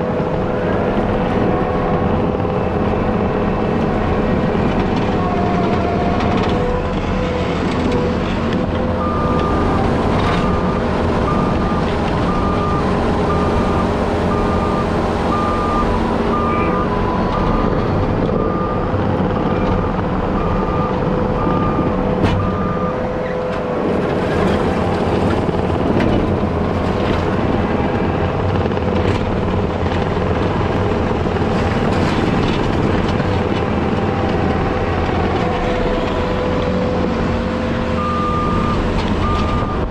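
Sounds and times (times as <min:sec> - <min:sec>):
diesel heavy equipment running: 0:00.0 - 0:39.9
backup alarm beeping: 0:09.0 - 0:23.0, 0:38.0 - 0:39.9.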